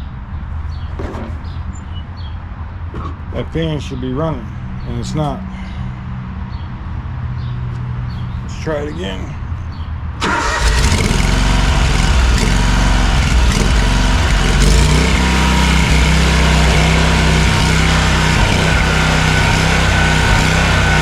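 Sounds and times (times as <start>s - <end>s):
mower engine running: 10.2s - 21.0s.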